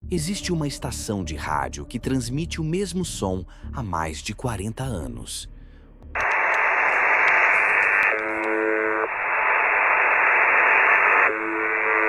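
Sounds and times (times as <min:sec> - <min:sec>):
radio static hiss: 0:06.2 - 0:12.0.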